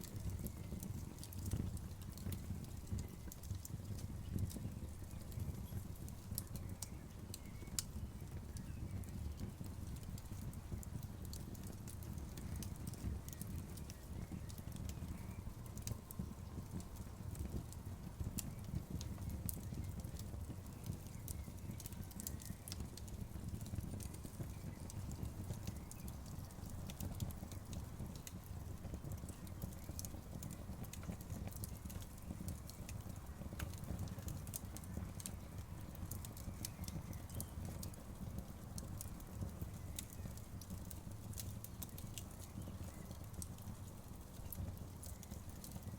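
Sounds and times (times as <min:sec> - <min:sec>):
bonfire pops and snaps: 0:00.0 - 0:45.9
low rumble of burning wood: 0:00.0 - 0:45.9.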